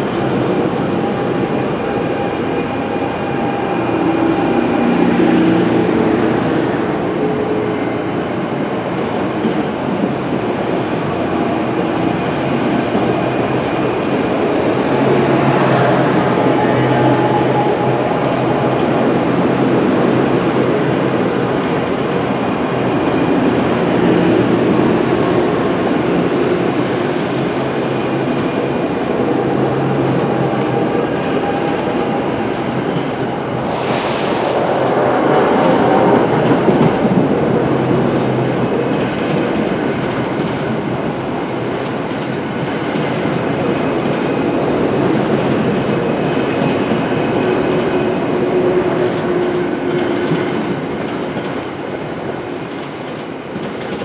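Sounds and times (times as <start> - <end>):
train wheels rumbling on rails: 0.0 - 54.0
brief high-pitched hiss: 33.7 - 34.5.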